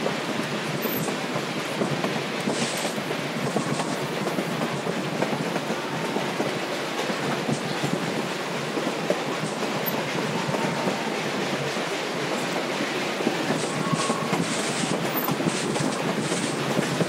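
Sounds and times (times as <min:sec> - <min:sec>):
train cars rumbling: 0:00.0 - 0:17.0
wheels clicking on track: 0:00.0 - 0:17.0.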